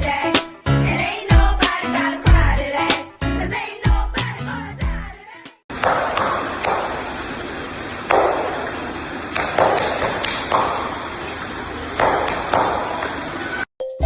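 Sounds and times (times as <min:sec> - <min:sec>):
sharp knocks: 0:05.7 - 0:07.1, 0:08.1 - 0:11.1, 0:12.0 - 0:13.2
steady background hiss: 0:05.7 - 0:13.7.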